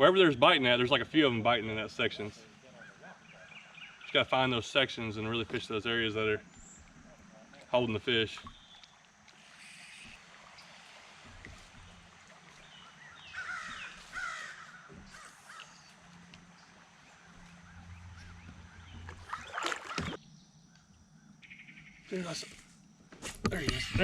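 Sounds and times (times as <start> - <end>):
crow cawing: 13.2 - 15.9.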